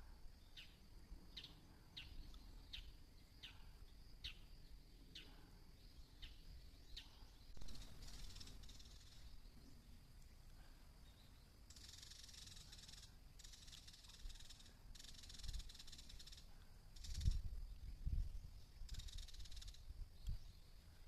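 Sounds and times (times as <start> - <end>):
high hissing buzz: 7.5 - 9.7.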